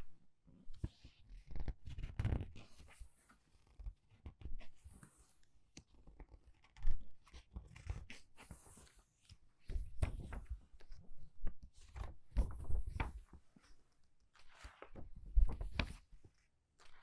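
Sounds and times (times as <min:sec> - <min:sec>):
book pages turning: 0:05.8 - 0:17.0.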